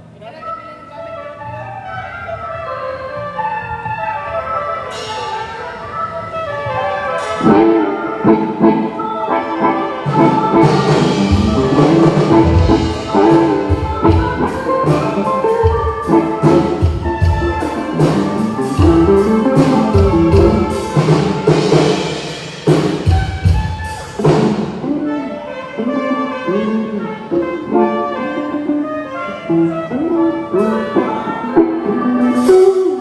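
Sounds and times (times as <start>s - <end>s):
brass band playing: 1.1s - 33.0s
drum beat: 10.1s - 24.9s.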